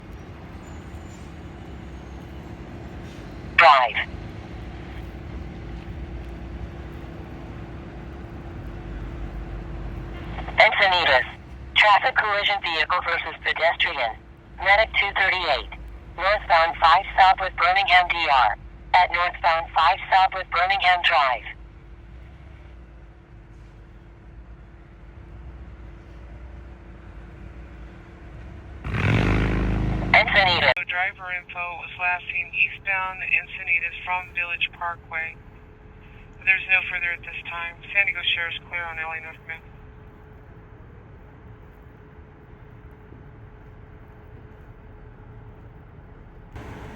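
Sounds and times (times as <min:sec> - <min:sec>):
constant faint hum: 0:02.1 - 0:28.8, 0:30.1 - 0:46.9
dispatch radio transmission: 0:03.6 - 0:04.1, 0:10.2 - 0:21.6, 0:30.0 - 0:35.4, 0:36.4 - 0:39.7
steady low rumble: 0:03.6 - 0:22.0, 0:30.0 - 0:46.9.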